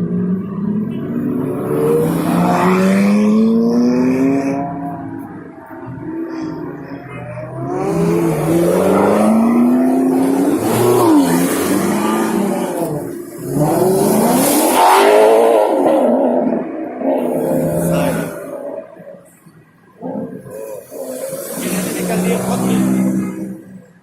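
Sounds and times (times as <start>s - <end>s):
car engine revving hard: 1.2s - 4.8s, 7.4s - 18.5s, 20.0s - 23.7s.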